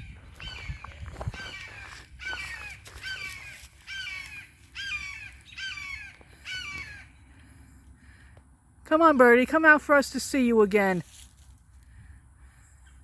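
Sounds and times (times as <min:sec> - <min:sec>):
large bird harsh calls: 0:00.0 - 0:08.2.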